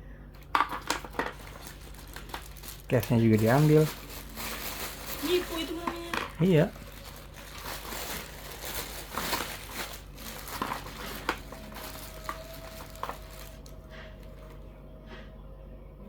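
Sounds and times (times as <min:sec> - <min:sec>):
packaging crinkling and rustling: 0:00.4 - 0:14.6.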